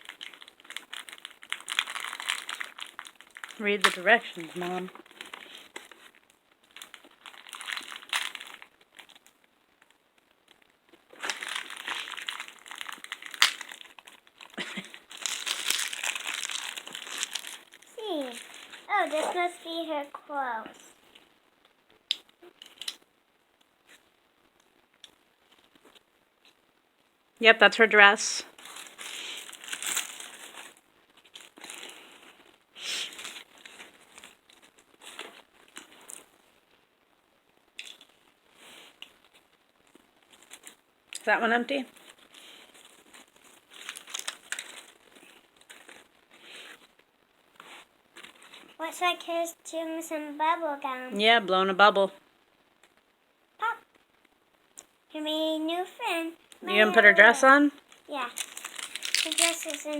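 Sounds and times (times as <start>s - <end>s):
plastic packaging crinkling: 0.0s - 19.8s, 28.5s - 36.6s, 37.7s - 41.3s, 41.9s - 48.8s, 56.4s - 59.9s.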